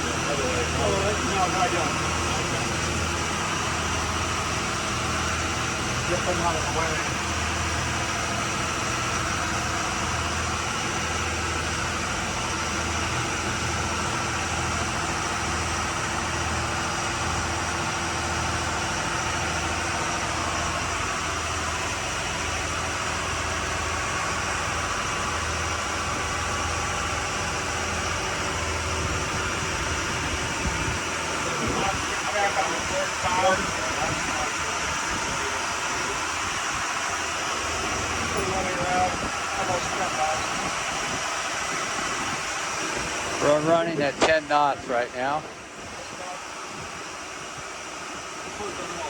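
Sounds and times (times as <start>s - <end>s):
boat engines humming: 0.0s - 49.0s.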